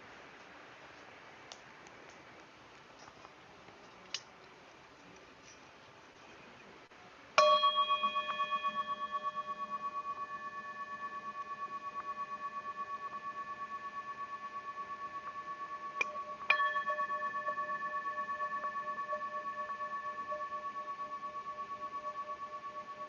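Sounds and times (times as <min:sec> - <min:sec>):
singing bowl ringing: 0:07.4 - 0:23.0.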